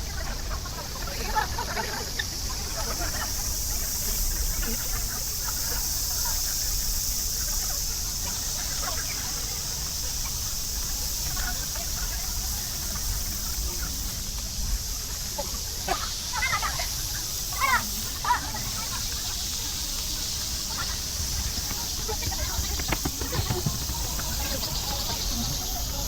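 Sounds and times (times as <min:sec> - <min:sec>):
high hiss: 0:02.3 - 0:26.0
sped-up voices chirping: 0:15.9 - 0:26.0.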